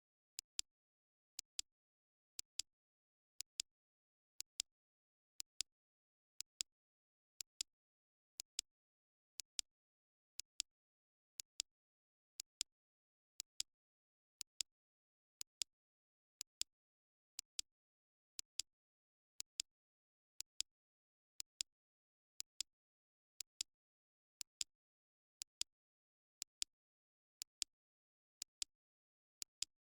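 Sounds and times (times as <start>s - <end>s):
timer ticking with double clicks: 0.4s - 0.7s, 1.3s - 1.7s, 2.3s - 3.7s, 4.3s - 4.7s, 5.4s - 5.7s, 6.4s - 6.7s, 7.3s - 7.7s, 8.4s - 8.7s, 9.3s - 9.7s, 10.4s - 10.7s, 11.4s - 11.7s, 12.4s - 12.7s, 13.4s - 13.7s, 14.4s - 14.7s, 15.3s - 15.7s, 16.4s - 16.7s, 17.4s - 17.7s, 18.4s - 18.7s, 19.4s - 19.7s, 20.4s - 20.7s, 21.4s - 21.7s, 22.4s - 22.7s, 23.4s - 23.7s, 24.4s - 24.7s, 25.4s - 25.7s, 26.4s - 26.7s, 27.4s - 27.7s, 28.4s - 28.7s, 29.4s - 29.8s.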